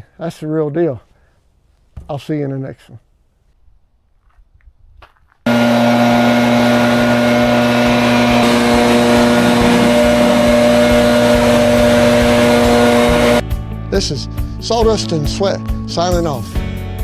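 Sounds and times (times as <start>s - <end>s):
engine-driven machine running: 5.5s - 13.4s.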